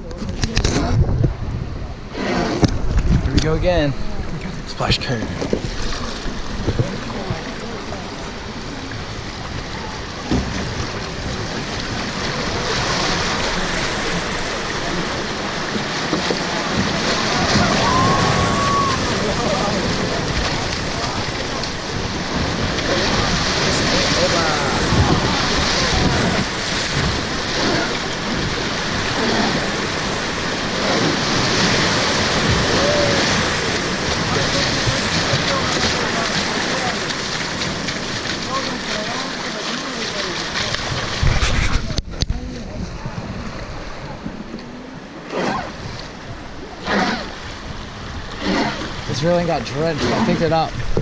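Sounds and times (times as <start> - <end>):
wind on microphone: 0.0 - 39.0, 40.4 - 51.0
river rapids rushing and splashing: 3.6 - 41.9
faint voices: 6.4 - 47.4.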